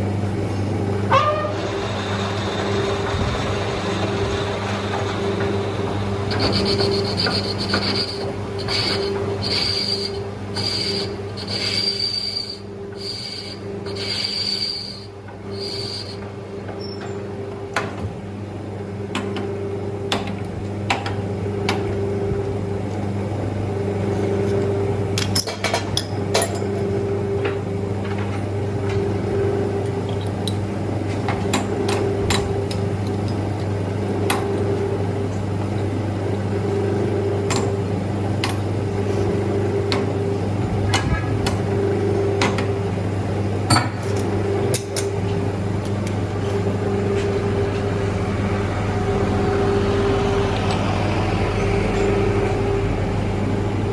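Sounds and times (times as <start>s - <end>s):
lathe motor hum: 0.0s - 16.8s
high-pitched squeal: 1.0s - 16.2s.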